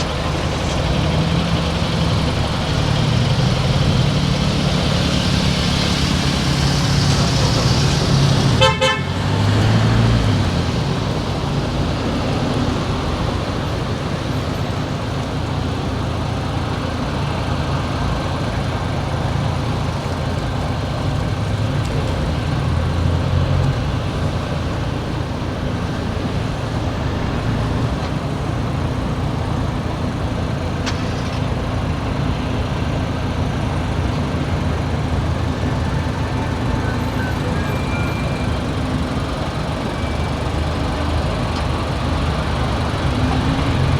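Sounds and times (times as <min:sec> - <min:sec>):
car engine and road noise: 0:00.0 - 0:43.9
car horn toot: 0:08.6 - 0:09.4.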